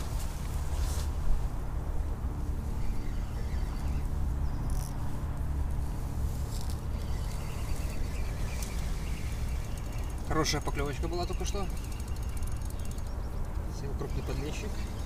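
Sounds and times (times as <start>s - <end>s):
steady low rumble: 0.0s - 15.0s
faint bird chirps: 2.6s - 5.0s, 6.9s - 15.0s.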